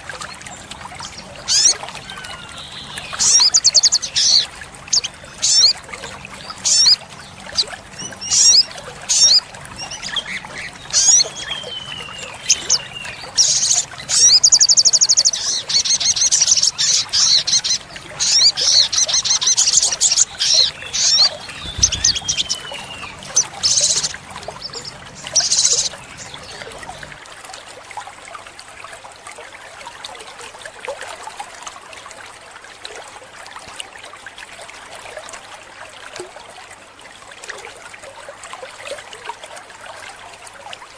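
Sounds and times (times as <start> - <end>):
bird singing with trills: 1.5 - 5.8, 6.6 - 27.1.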